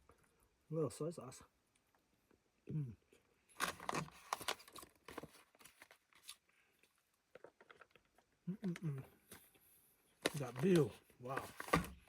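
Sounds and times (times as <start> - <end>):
crinkling handling noises: 3.4 - 12.0.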